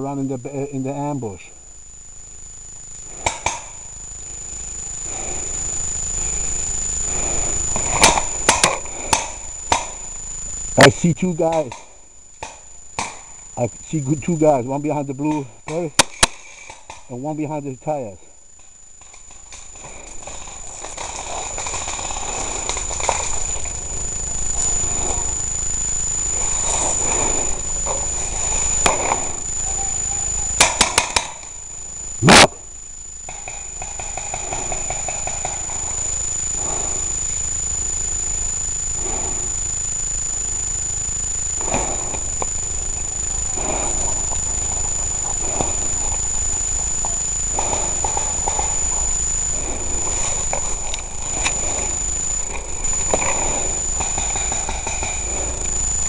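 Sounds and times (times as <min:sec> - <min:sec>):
thin high whine: 0:00.0 - 0:56.0
sharp clicks: 0:02.8 - 0:03.8, 0:11.4 - 0:13.4, 0:15.2 - 0:17.1, 0:26.4 - 0:31.5, 0:33.2 - 0:36.6, 0:38.9 - 0:49.0
airsoft gun pops: 0:15.7 - 0:17.0.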